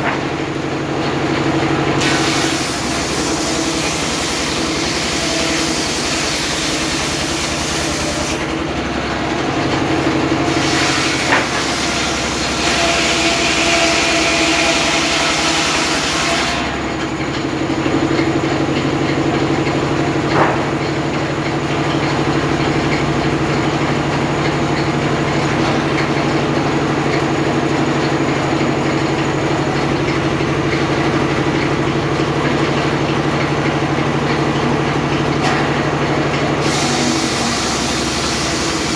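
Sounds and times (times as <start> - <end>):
engine running steadily: 0.0 - 13.1, 16.6 - 38.9
circular saw cutting wood: 0.0 - 17.1, 34.6 - 38.9
sharp knocks: 20.3 - 21.0.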